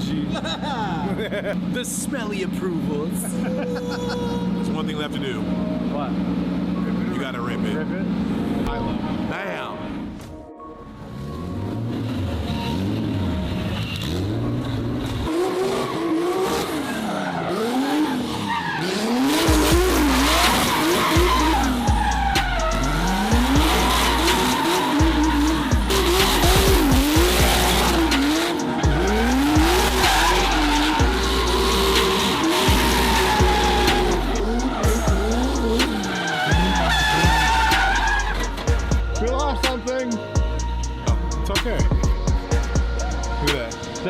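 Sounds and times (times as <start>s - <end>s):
car engine revving: 0.0s - 40.9s
tyres squealing: 15.4s - 40.2s
music with heavy bass: 19.2s - 44.0s.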